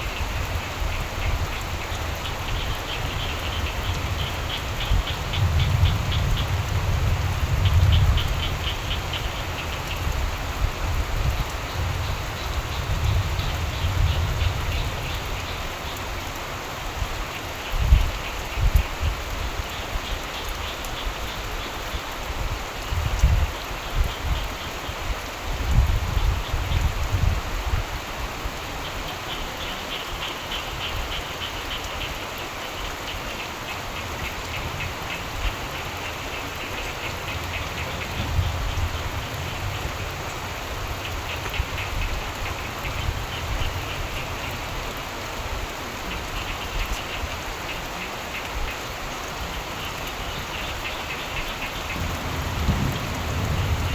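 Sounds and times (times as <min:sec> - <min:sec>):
frogs calling in trills: 0:00.0 - 0:10.6, 0:11.2 - 0:16.4, 0:28.7 - 0:45.4, 0:46.0 - 0:53.9
steady rain falling: 0:00.0 - 0:53.9.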